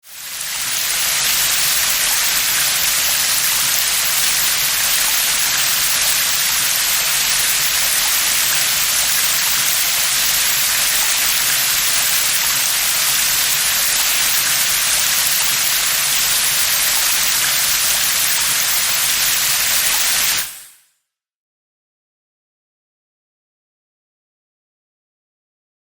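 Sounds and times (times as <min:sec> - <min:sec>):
steady rain falling: 0:00.1 - 0:20.4.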